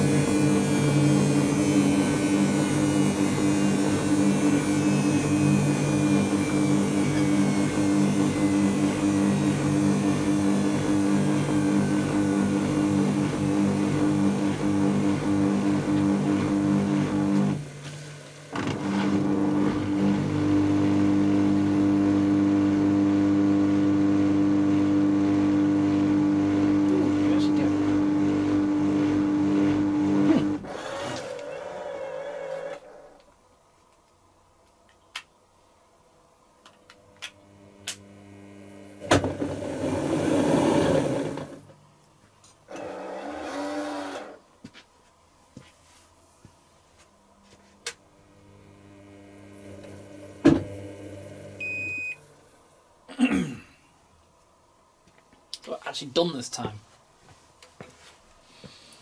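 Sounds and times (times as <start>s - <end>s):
washing machine spinning: 0.0s - 31.2s, 37.6s - 41.7s.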